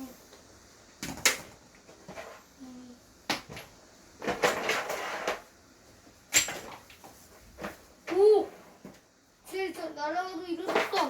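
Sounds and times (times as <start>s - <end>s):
plastic toys knocking together: 1.0s - 2.2s, 3.3s - 5.4s, 6.3s - 7.0s, 10.6s - 11.0s.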